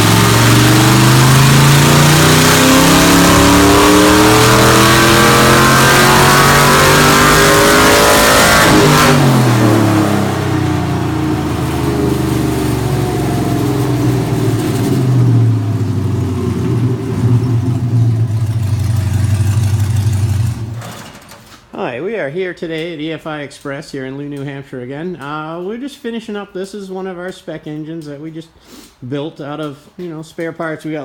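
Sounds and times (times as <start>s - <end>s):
engine running on dyno: 0.0s - 20.9s.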